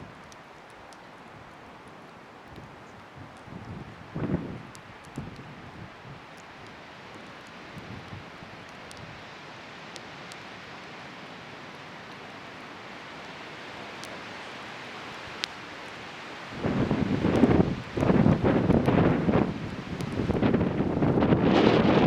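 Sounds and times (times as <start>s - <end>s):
bonfire hissing and crackling: 0.0s - 22.0s
wind gust on microphone: 3.2s - 6.2s, 16.5s - 22.0s.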